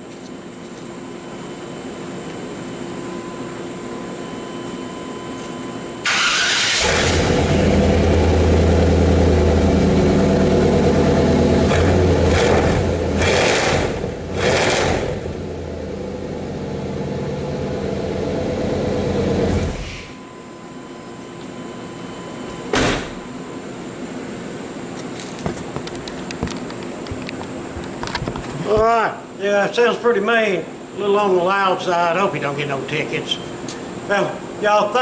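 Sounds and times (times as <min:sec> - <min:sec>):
engine revving and idling: 0:06.1 - 0:19.9.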